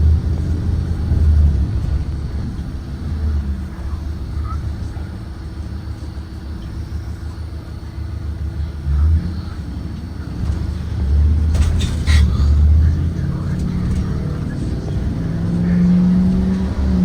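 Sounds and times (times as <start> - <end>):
bus engine rumbling: 0.0 - 17.0.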